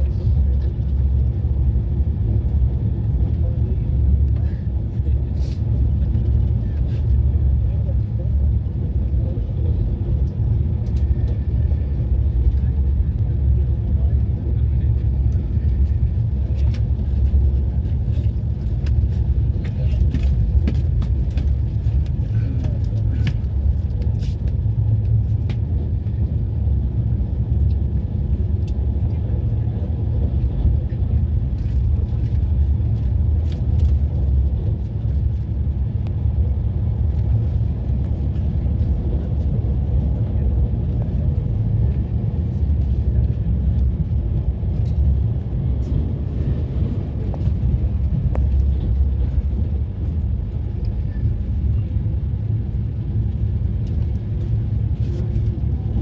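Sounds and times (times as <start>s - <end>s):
moving train rumble: 0.0s - 56.0s.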